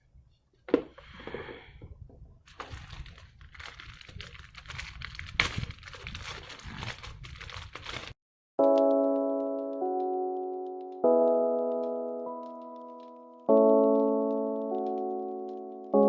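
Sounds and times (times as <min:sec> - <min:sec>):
plastic packaging crinkling: 0:02.5 - 0:08.2
sustained keyboard chord: 0:08.6 - 0:16.0.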